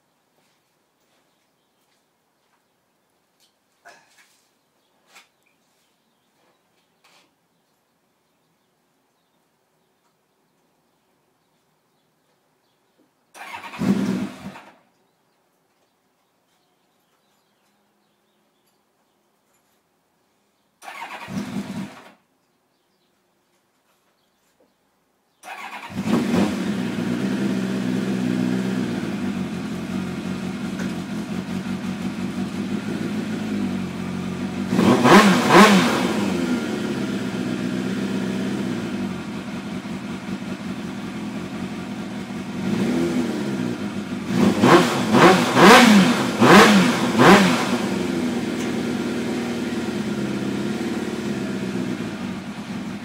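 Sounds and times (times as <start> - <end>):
motorcycle engine revving: 13.4 - 14.8, 20.8 - 22.2, 25.4 - 53.0.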